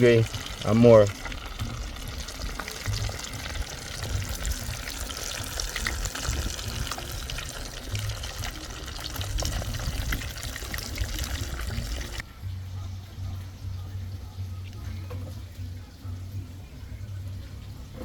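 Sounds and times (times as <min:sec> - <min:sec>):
fish sizzling in hot oil: 0:00.0 - 0:12.2
oil popping and crackling: 0:00.0 - 0:12.3.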